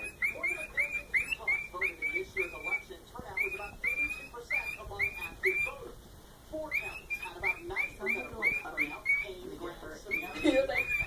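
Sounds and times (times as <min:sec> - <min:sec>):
cockatiel whistled chirps: 0:00.0 - 0:05.8, 0:06.7 - 0:09.4, 0:10.1 - 0:11.0.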